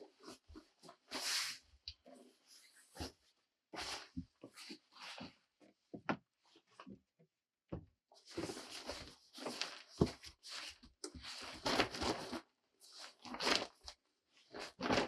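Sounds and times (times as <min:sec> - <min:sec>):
rustling and scraping: 0:08.2 - 0:13.9.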